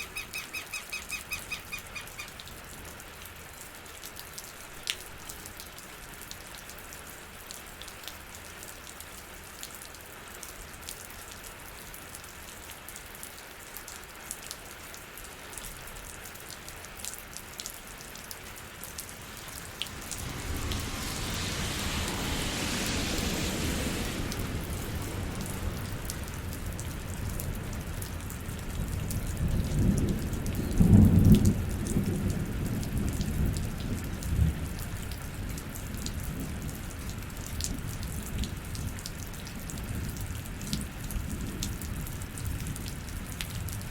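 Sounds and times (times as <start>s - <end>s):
steady rain: 0.0s - 43.9s
raindrops ticking: 17.3s - 32.4s
thunder rolling: 18.6s - 33.8s.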